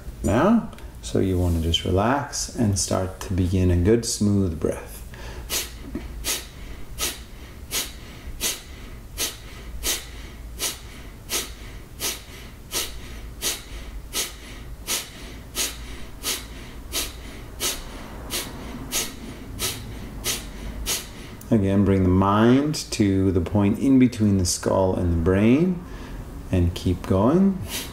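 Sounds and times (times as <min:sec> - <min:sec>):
forceful nasal exhalations: 0:05.1 - 0:21.5, 0:27.6 - 0:27.9.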